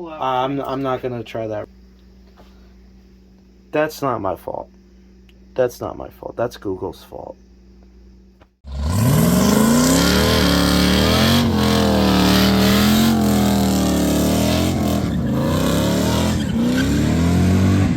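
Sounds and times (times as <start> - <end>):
car engine revving: 8.7 - 17.9.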